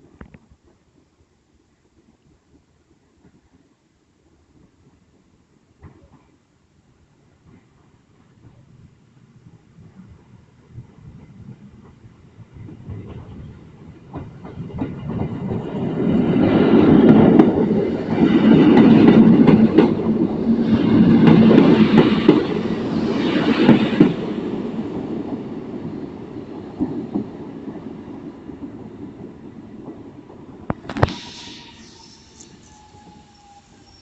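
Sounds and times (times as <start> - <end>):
electric train running past: 9.7 - 34.0.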